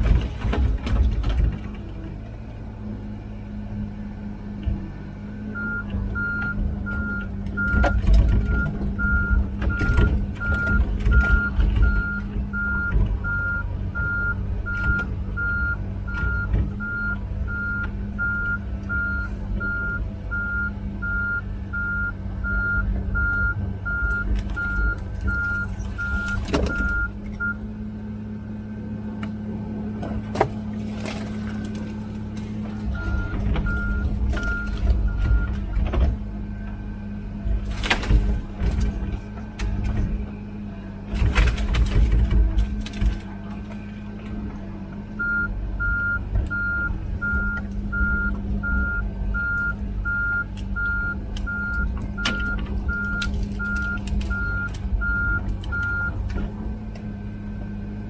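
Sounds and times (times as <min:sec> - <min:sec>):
diesel engine running: 0:00.0 - 0:58.0
travel alarm beeping: 0:05.6 - 0:27.6, 0:32.9 - 0:35.6, 0:45.2 - 0:56.2.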